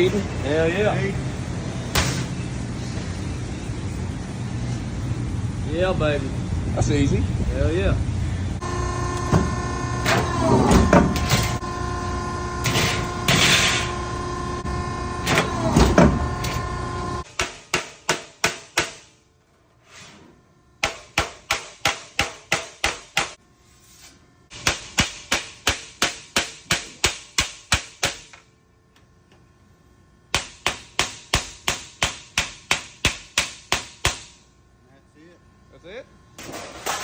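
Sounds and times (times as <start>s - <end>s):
loud noise with ringing tone: 0.0s - 23.7s
hammer striking sheet metal: 17.3s - 19.2s, 20.8s - 23.4s, 24.5s - 28.3s, 30.3s - 34.4s.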